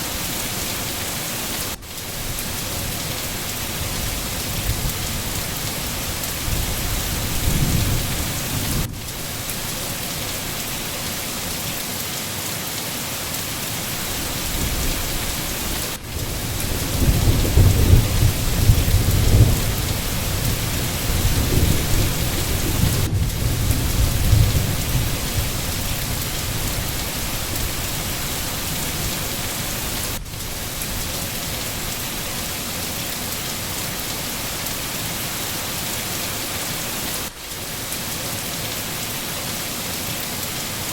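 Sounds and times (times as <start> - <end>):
steady rain hissing: 0.0 - 40.9
rolling thunder: 3.6 - 9.3, 14.1 - 29.2.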